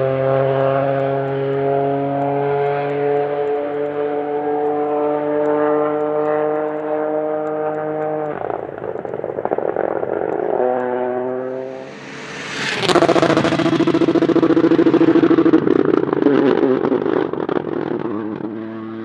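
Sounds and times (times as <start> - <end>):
exhaust crackle: 0.0 - 19.0
rally car engine at full load: 0.0 - 19.0
car rushing past: 0.1 - 18.2.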